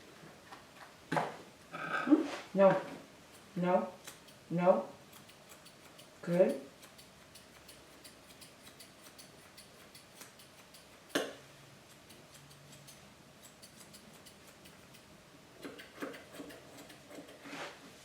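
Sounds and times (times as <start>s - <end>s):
grooming shears snipping hair: 3.3s - 17.7s.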